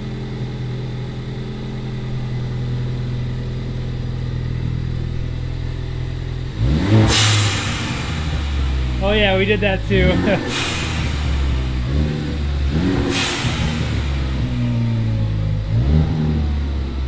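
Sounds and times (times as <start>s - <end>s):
car engine idling: 0.0s - 17.0s
engine revving: 0.0s - 17.0s
blow-off valve hiss: 9.0s - 14.7s.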